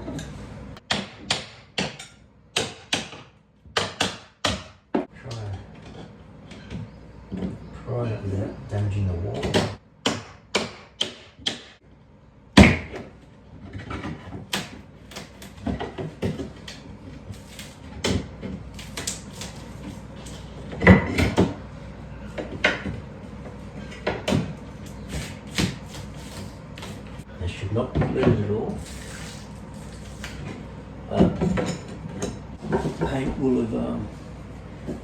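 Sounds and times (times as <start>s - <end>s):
knocks and clicks of wood and metal: 0.8s - 5.1s, 9.4s - 11.8s, 12.6s - 16.8s.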